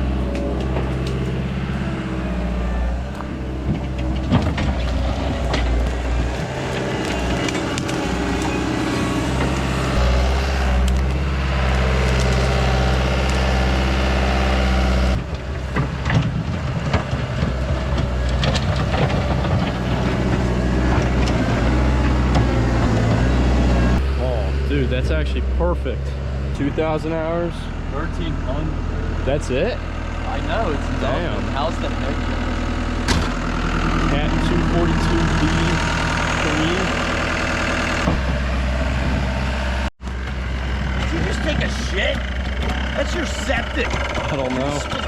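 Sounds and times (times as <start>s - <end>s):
diesel engine running: 0.0s - 45.0s
machine knocks and clanks: 3.2s - 11.2s, 40.2s - 45.0s.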